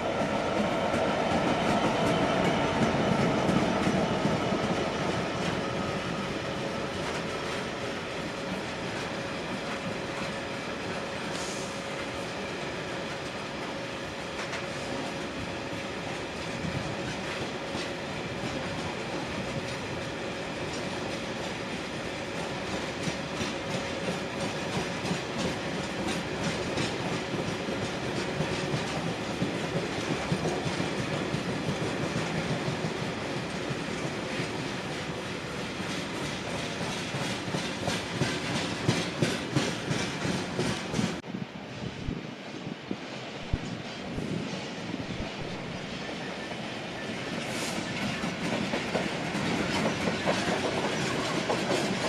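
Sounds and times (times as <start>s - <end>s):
train rumbling past: 0.0s - 52.0s
wheels clicking over rail joints: 22.4s - 41.2s, 47.4s - 52.0s.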